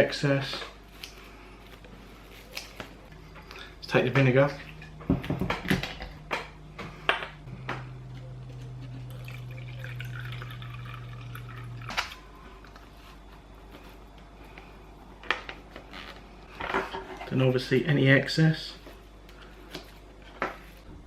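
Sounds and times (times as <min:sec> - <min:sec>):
liquid trickling into cup: 0:08.8 - 0:12.1.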